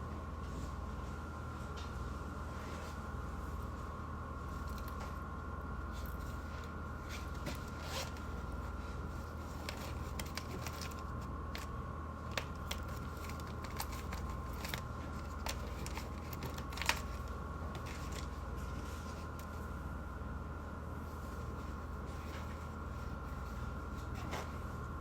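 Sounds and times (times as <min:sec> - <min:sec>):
steady low hum: 0:00.0 - 0:25.0
small clicks and rustles: 0:09.4 - 0:19.6.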